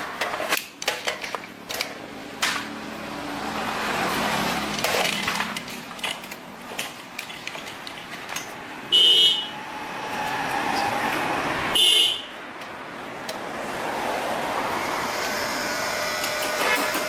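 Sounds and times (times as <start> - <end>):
tools and parts clattering: 0.0 - 2.8, 4.1 - 8.6
workshop background noise: 0.0 - 17.0.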